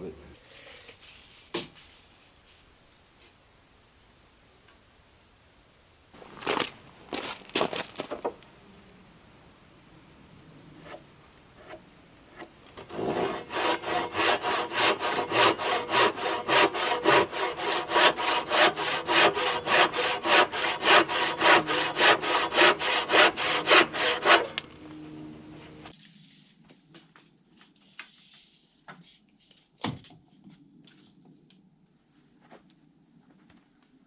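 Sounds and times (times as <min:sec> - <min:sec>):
hand saw cutting wood: 0:10.8 - 0:25.9.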